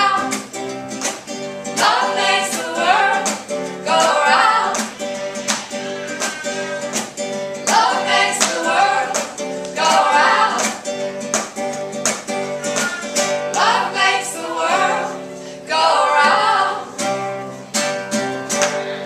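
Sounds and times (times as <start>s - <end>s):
people singing: 0.0s - 0.5s, 1.6s - 6.9s, 7.6s - 11.0s, 12.6s - 17.2s
plucked strings: 0.0s - 15.5s.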